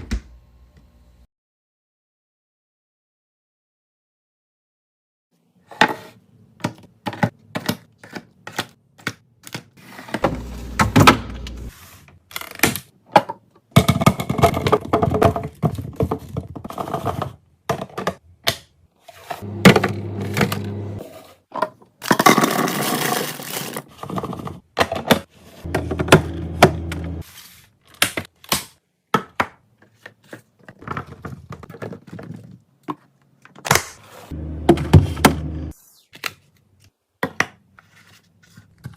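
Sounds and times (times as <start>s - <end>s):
packages clicking and thunking: 13.6s - 18.2s, 27.9s - 33.6s.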